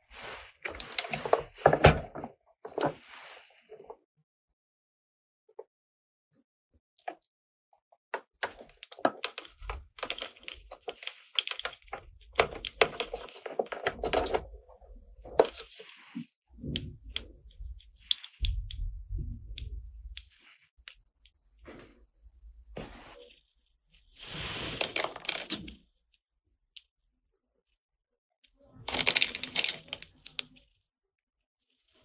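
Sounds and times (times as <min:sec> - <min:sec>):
plastic toy clicks and knocks: 0:00.7 - 0:02.0, 0:08.4 - 0:14.5, 0:24.9 - 0:25.8, 0:28.9 - 0:30.6.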